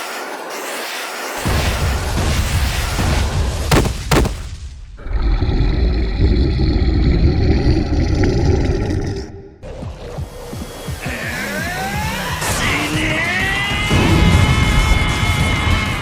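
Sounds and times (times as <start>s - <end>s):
sharp bangs: 1.5s - 4.7s.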